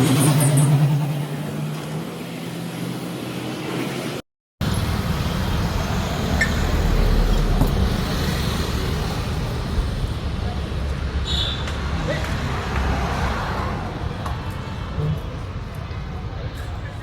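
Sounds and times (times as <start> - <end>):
engine low rumble: 4.6 - 12.9.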